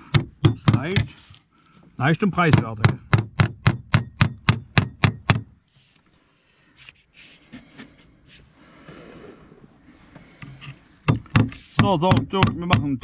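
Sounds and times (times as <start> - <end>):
hammer driving nail into slate: 2.5 - 5.5.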